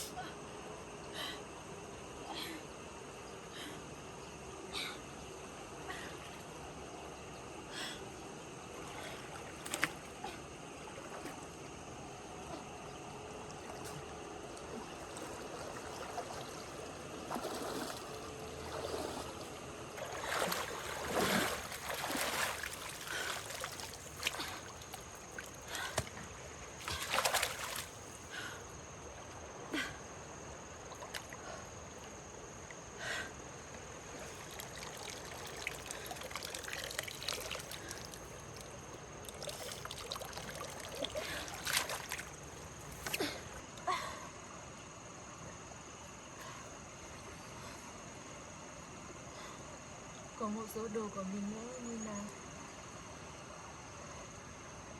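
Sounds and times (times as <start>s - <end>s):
water trickling and splashing: 8.6s - 29.6s, 30.7s - 32.8s, 33.8s - 43.4s.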